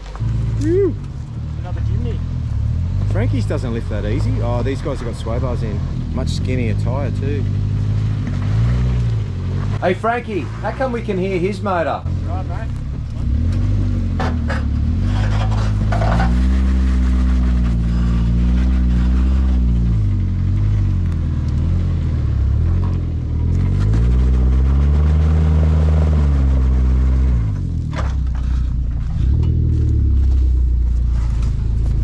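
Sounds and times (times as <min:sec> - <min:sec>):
car engine revving hard: 0:02.7 - 0:27.7.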